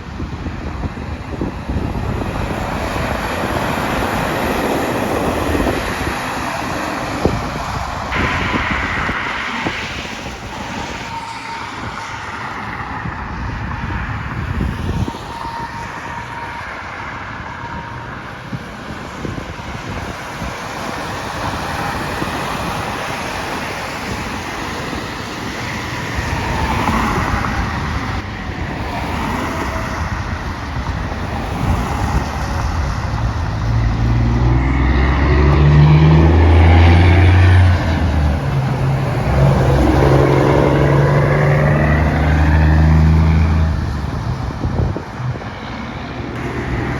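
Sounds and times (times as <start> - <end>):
road traffic passing: 0.0 - 46.9
wind buffeting microphone: 0.0 - 46.9
heavy vehicle engine running close: 32.1 - 46.9.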